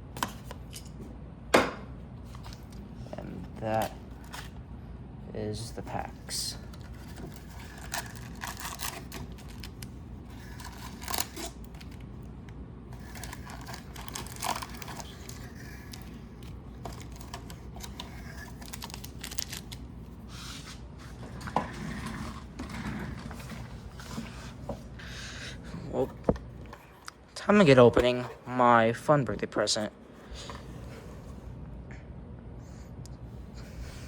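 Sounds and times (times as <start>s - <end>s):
packaging crinkling and tearing: 6.6s - 12.2s, 12.9s - 20.0s.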